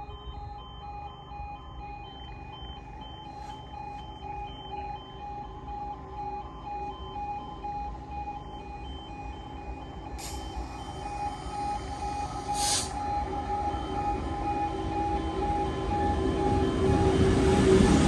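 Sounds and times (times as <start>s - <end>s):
level crossing two-tone alarm: 0.0s - 18.0s
diesel freight train rumbling: 11.6s - 18.0s
short hisses: 12.5s - 13.0s.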